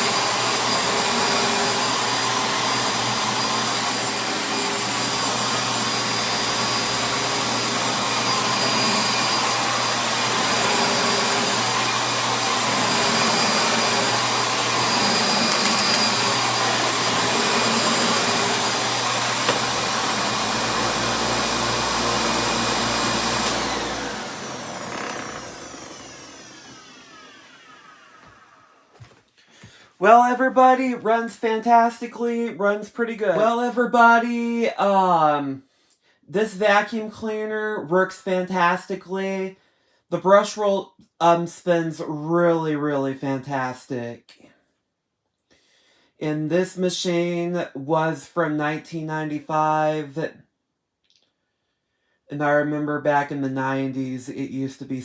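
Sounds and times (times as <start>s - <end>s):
vacuum motor winding down whine: 0.0s - 28.9s
upright vacuum cleaner running: 0.0s - 29.1s.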